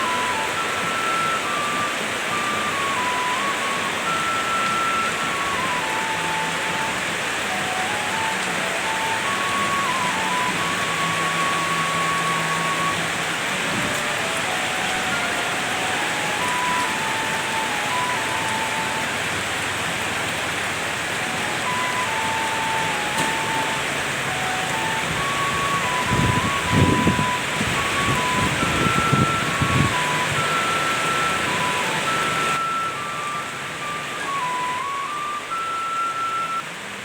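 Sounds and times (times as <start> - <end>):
heavy rain: 0.0 - 37.0
faint high-note tune: 21.3 - 36.7.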